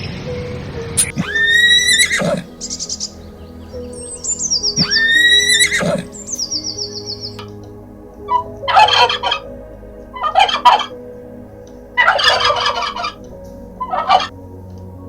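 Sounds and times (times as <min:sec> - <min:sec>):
turkey gobbling: 0:10.2 - 0:10.9, 0:12.0 - 0:13.2, 0:13.8 - 0:14.3.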